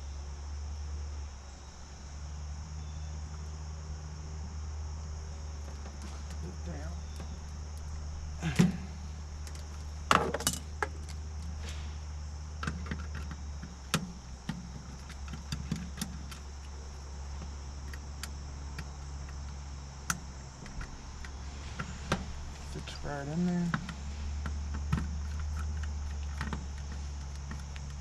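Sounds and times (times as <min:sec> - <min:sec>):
tools and wire clattering: 0:05.6 - 0:11.9
small metallic clicks: 0:12.6 - 0:28.0.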